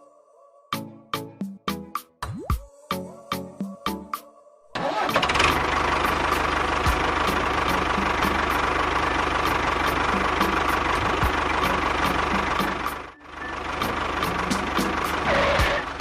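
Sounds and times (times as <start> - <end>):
engine idling with knocking chug: 5.1 - 16.0.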